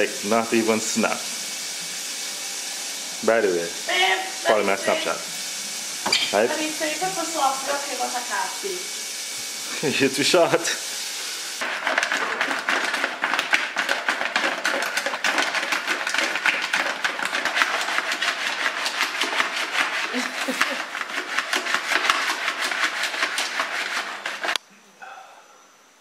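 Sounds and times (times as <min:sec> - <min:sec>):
chicken frying in hot oil: 0:00.0 - 0:24.6.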